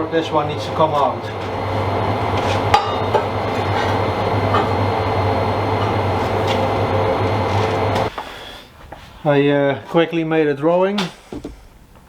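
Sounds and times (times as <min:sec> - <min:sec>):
metalworking machine hum: 0:00.0 - 0:08.1.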